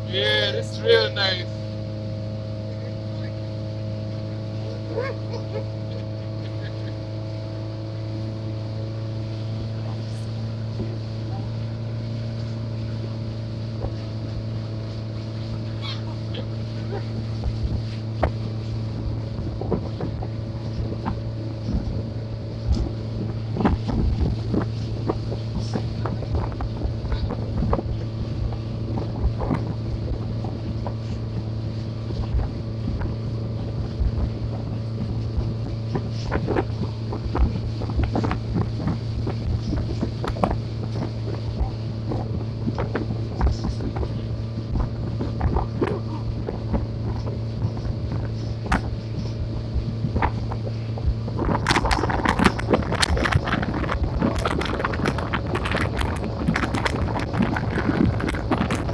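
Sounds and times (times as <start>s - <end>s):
boat engine droning: 0.0s - 58.9s
wind buffeting microphone: 15.6s - 58.9s
knocks and thumps: 51.5s - 58.9s.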